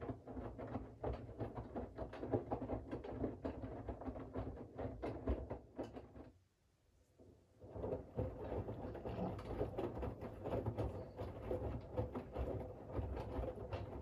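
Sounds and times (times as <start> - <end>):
laundry and water sloshing in drum: 7.6 - 14.0.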